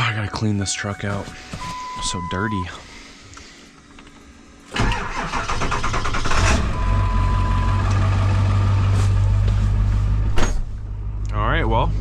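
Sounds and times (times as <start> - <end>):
diesel engine cranking and idling: 4.7 - 11.9.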